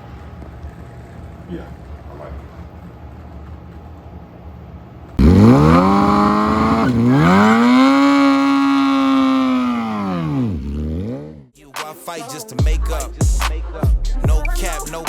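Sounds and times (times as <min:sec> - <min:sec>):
motorcycle engine revving: 0:05.2 - 0:11.6.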